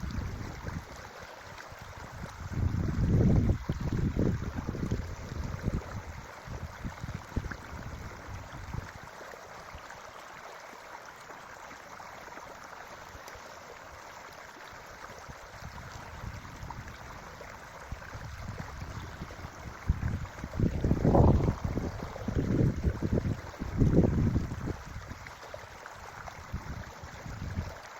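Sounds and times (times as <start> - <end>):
wind buffeting microphone: 0.0 - 1.0, 2.0 - 9.0, 15.5 - 25.3
creek water flowing: 0.0 - 27.9.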